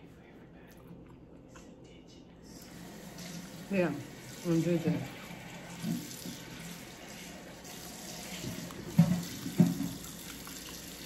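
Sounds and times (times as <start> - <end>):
person chewing crisp plantain: 9.9 - 11.0.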